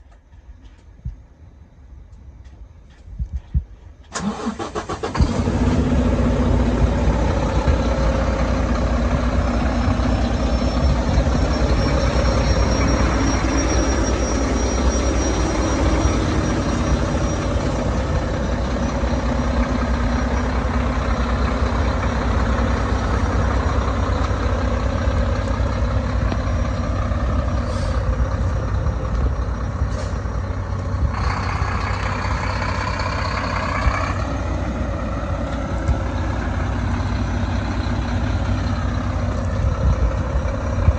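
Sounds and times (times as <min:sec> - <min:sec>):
diesel truck engine idling: 0:04.0 - 0:40.9
rushing air hiss: 0:27.6 - 0:28.2.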